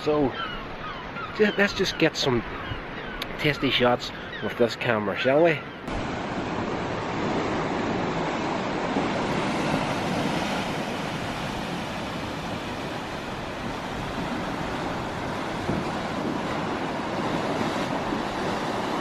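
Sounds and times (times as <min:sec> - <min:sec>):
sea surf washing: 0:00.0 - 0:19.0
wind on microphone: 0:05.8 - 0:19.0.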